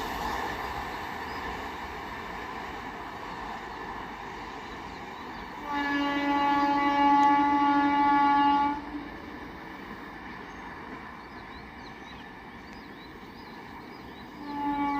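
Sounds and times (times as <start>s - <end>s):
train running noise: 0.0s - 14.9s
locomotive horn blast: 5.6s - 9.0s, 14.4s - 14.9s.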